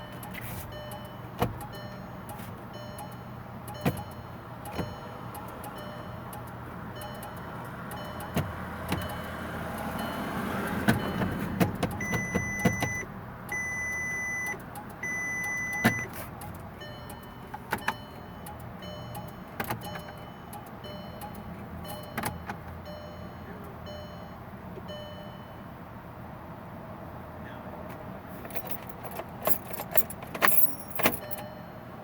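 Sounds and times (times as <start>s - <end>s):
dashboard warning beeps: 0.0s - 25.8s, 30.4s - 32.0s
car starter clicking: 0.1s - 23.0s.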